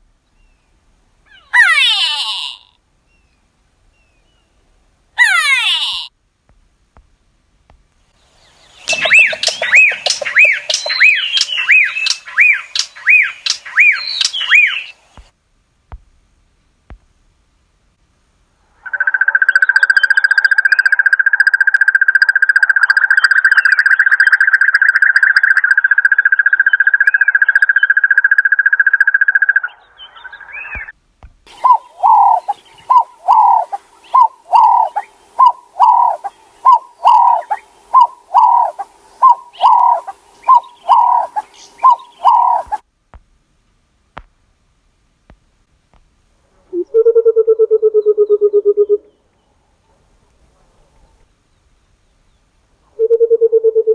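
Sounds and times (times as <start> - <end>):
low repeated bird notes: 8.0 - 15.3, 18.7 - 42.8, 46.7 - 49.6, 51.6 - 53.9
upswept bird notes: 8.5 - 15.0, 31.5 - 42.8
long bird trill: 8.8 - 15.0, 31.5 - 42.8.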